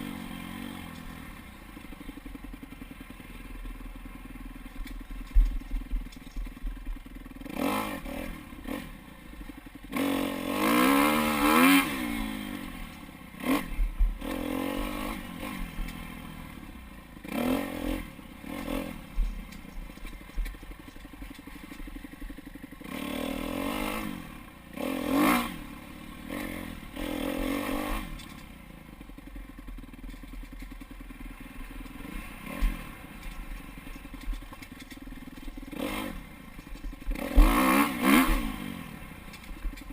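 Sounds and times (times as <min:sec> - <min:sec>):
dirt bike engine revving: 0:00.0 - 0:01.4, 0:06.7 - 0:30.1, 0:31.2 - 0:39.9
bike clattering over rough ground: 0:04.7 - 0:07.2, 0:18.6 - 0:22.4, 0:29.9 - 0:30.9, 0:32.6 - 0:38.5.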